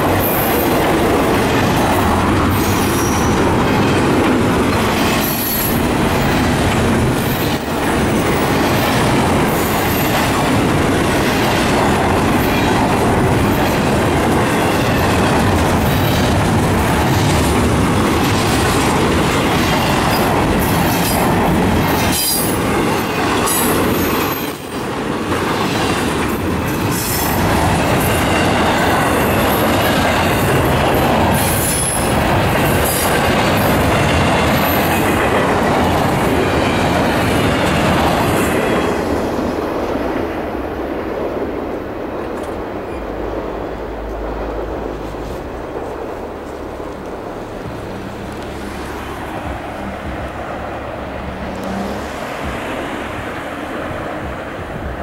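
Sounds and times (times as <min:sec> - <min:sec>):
wheels clicking over rail joints: 0:00.0 - 0:43.3
steel wheels rumbling on rail: 0:00.0 - 0:55.0.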